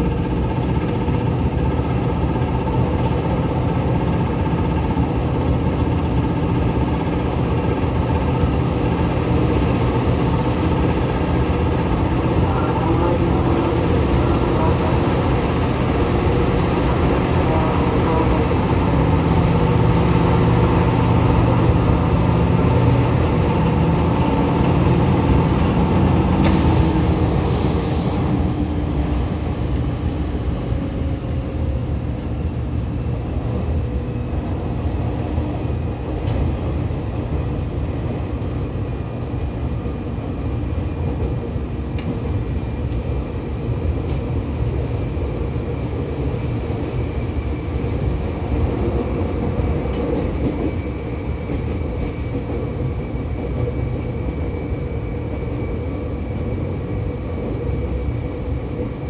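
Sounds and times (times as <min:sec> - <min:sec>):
train wheels rumbling on rail: 0:00.0 - 0:59.0
air hiss: 0:26.4 - 0:28.3.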